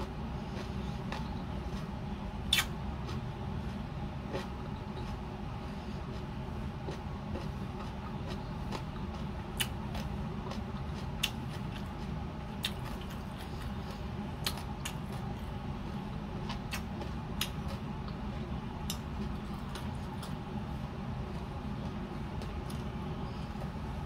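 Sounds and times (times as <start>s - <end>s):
steady low hum: 0.0s - 24.0s
chewing clicks and smacks: 0.5s - 1.9s, 2.5s - 3.2s, 6.1s - 15.4s, 16.4s - 18.2s.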